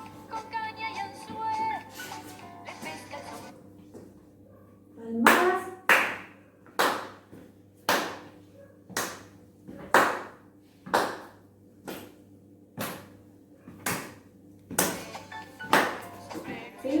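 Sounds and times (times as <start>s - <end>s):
slow hand claps: 14.8s - 16.1s.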